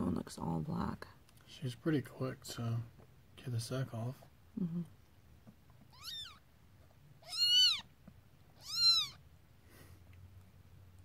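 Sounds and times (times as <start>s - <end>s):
kitten mewing: 5.9s - 6.4s, 7.2s - 7.9s, 8.6s - 9.2s.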